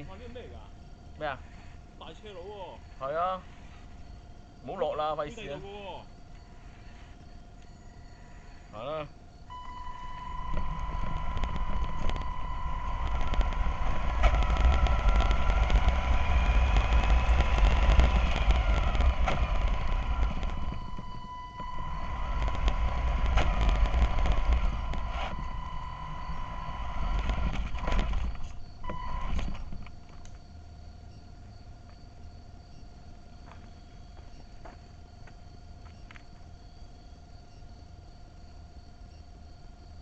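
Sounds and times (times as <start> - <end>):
steady high tone: 7.6 - 29.3
model bus electric drive whining: 9.5 - 30.4.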